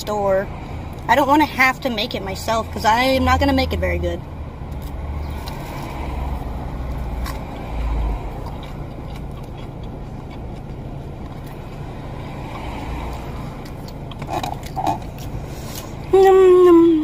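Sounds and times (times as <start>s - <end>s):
vehicle engine low rumble: 0.0s - 17.0s.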